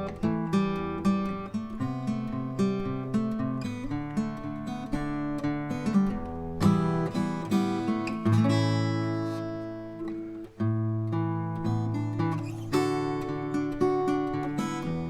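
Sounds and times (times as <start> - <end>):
acoustic guitar fingerstyle: 0.0 - 15.0.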